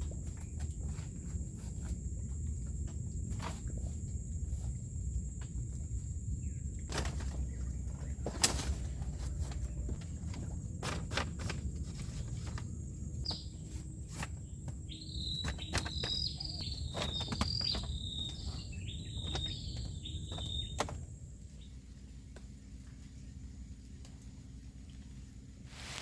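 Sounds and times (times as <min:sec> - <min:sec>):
steady low rumble: 0:00.0 - 0:15.0
knocks and handling clatter: 0:06.8 - 0:21.2
bird chirping: 0:12.1 - 0:22.2.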